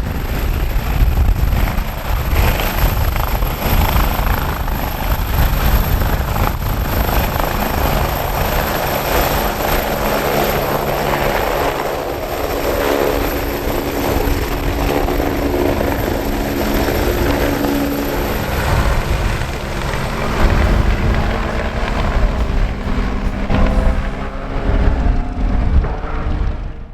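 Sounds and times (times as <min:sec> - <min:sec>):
helicopter running: 0:00.0 - 0:26.9.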